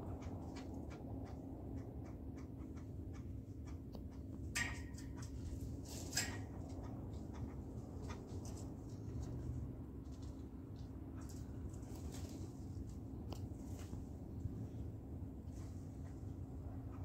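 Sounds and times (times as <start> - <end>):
steady low background: 0.0 - 5.8
birds tapping on feeders: 2.2 - 8.6.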